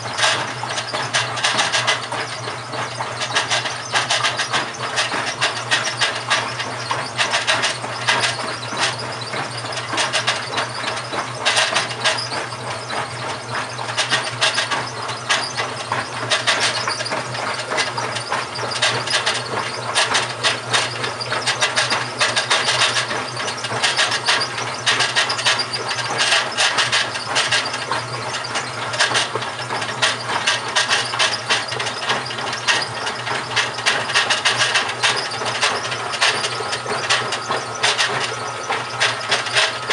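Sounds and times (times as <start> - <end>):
washing machine grinding noise: 0.0 - 39.9
washing machine motor hum: 0.0 - 39.9.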